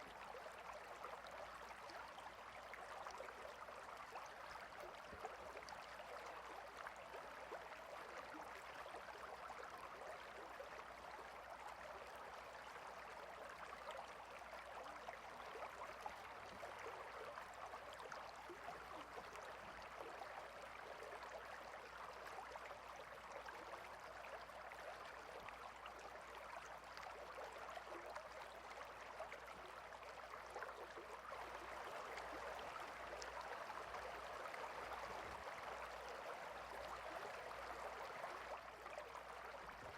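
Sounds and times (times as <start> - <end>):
stream babbling: 24.6 - 39.9.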